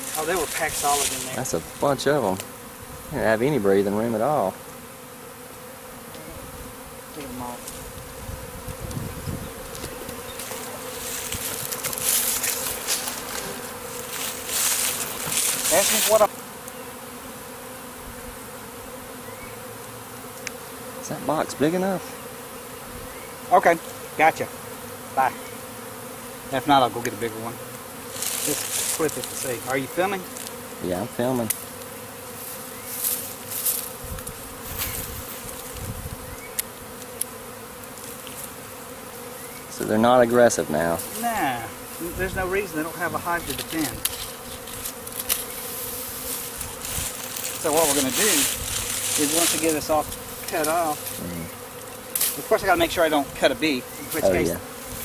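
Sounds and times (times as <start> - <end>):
crackling hiss: 0.0 - 2.9, 6.1 - 16.8, 26.6 - 30.6, 40.9 - 55.0
bees buzzing: 0.0 - 55.0.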